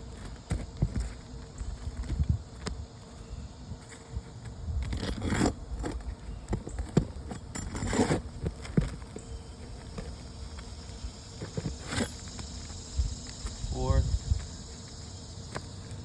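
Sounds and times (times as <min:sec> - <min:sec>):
pry tool scraping shingles: 0:04.4 - 0:10.6, 0:11.4 - 0:12.7.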